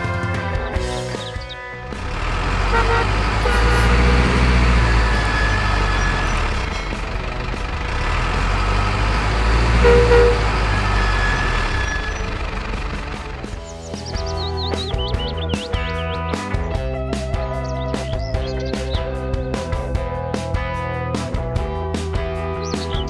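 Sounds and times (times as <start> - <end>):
heavy truck engine rumbling: 0.0 - 23.0
short high tones: 9.8 - 12.3.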